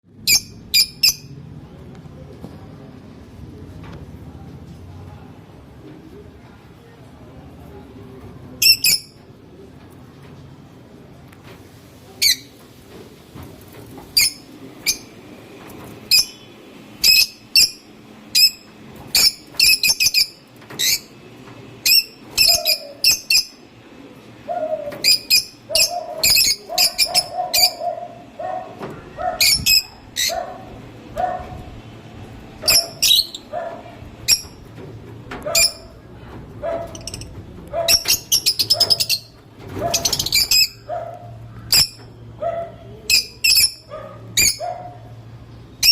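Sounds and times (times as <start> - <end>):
lovebirds chirping: 16.0 - 21.2, 21.8 - 23.6, 24.5 - 31.4, 32.6 - 34.6, 36.8 - 45.9.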